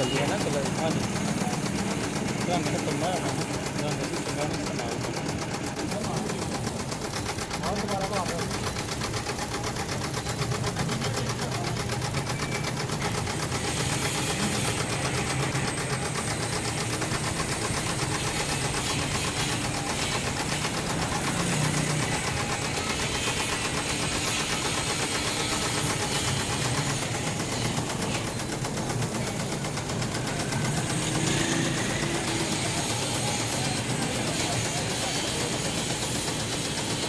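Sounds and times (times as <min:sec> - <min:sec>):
factory machinery pulsing chatter: 0:00.0 - 0:37.0
machinery hiss: 0:12.6 - 0:37.0.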